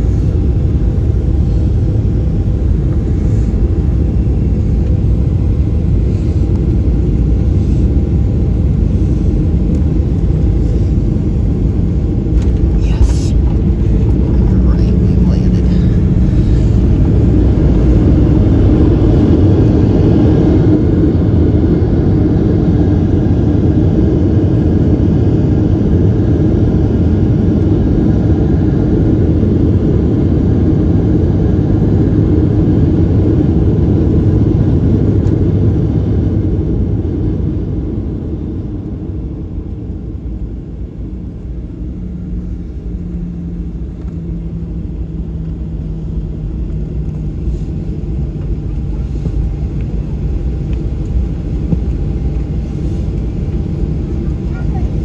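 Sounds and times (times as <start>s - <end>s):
faint steady hum: 0.0s - 21.7s, 37.7s - 55.0s
airplane cabin roar: 0.0s - 55.0s.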